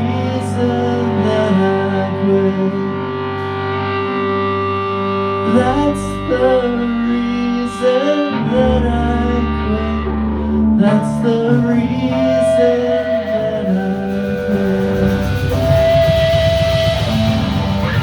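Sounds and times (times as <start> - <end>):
live band playing: 0.0 - 18.0
sliding melodic line: 0.0 - 18.0.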